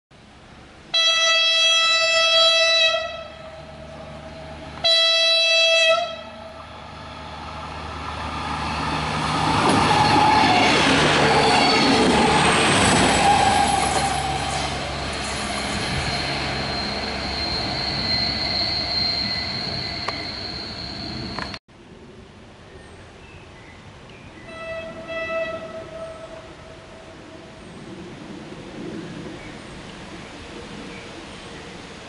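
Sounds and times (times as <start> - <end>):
railcar engine and wheel noise: 0.2 - 32.0
railcar horn blasts: 0.9 - 6.7, 24.4 - 27.2.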